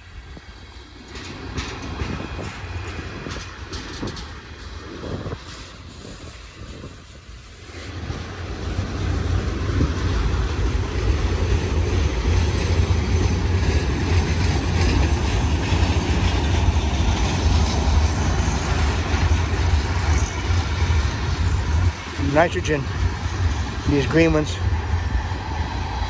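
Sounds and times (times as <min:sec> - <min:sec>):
freight train rumbling past: 0:00.0 - 0:26.0
wheel and rail noise: 0:00.0 - 0:26.0.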